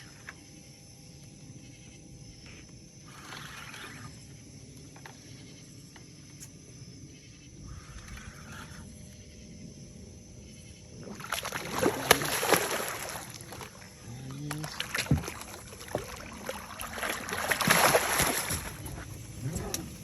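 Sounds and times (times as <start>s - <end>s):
fish thrashing in water: 11.0s - 20.0s.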